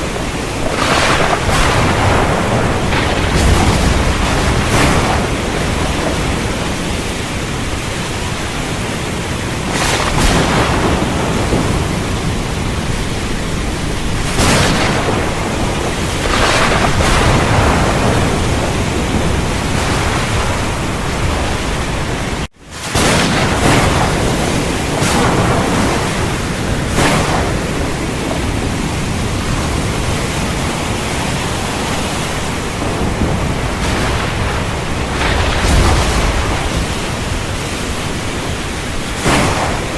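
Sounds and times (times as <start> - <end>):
heavy rain pouring: 0.0 - 39.9
sharp thunder cracks: 0.0 - 39.9.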